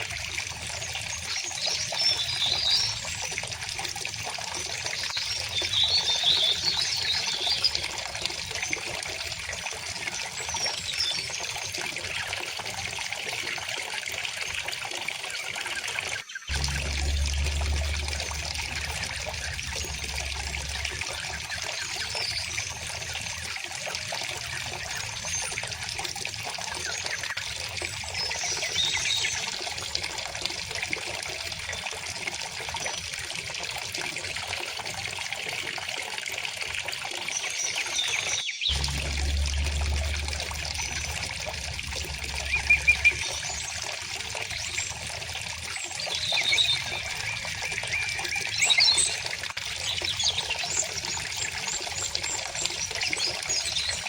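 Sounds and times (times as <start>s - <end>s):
stream babbling: 16.5s - 23.6s, 38.7s - 49.1s
low water rumble: 16.5s - 26.9s, 38.7s - 54.0s
bird chirps: 37.9s - 44.9s.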